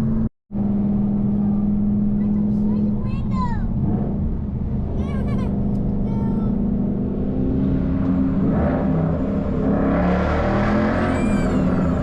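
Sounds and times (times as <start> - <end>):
car exhaust drone: 0.0 - 3.0.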